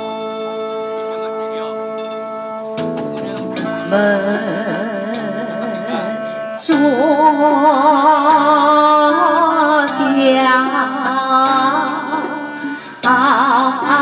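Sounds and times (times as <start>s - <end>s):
instrumental backing: 0.0s - 14.0s
person singing with vibrato: 3.0s - 14.0s.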